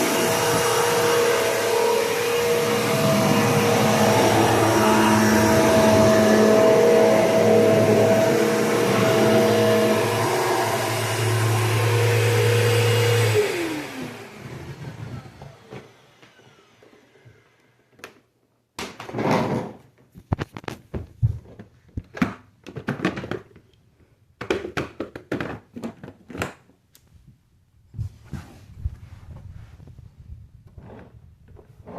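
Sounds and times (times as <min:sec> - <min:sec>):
motor whining down: 0:00.0 - 0:17.6
vacuum cleaner running: 0:00.0 - 0:17.9.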